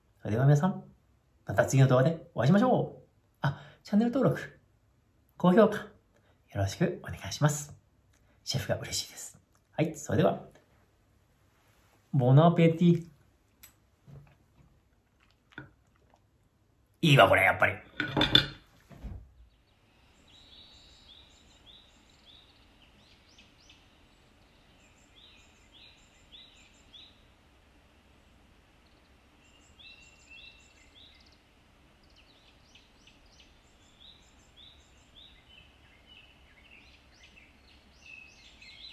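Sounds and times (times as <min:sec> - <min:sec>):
faint low hum: 0:00.0 - 0:38.9
bird chirping: 0:19.4 - 0:27.4, 0:28.2 - 0:38.9.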